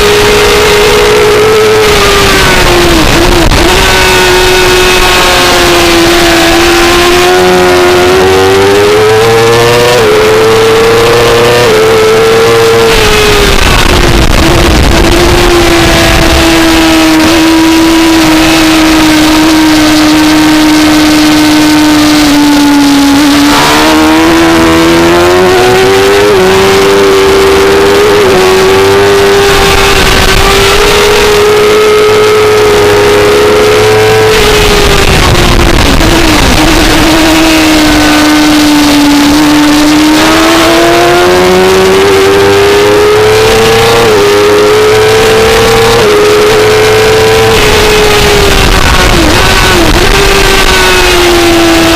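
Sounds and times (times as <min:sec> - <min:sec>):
motorcycle engine at high revs: 0:00.0 - 0:51.9
wind rush: 0:11.6 - 0:19.2, 0:33.4 - 0:44.2.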